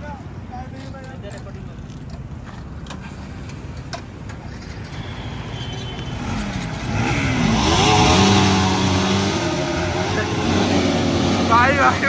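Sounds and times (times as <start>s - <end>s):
motorcycle engine accelerating: 5.9s - 12.0s.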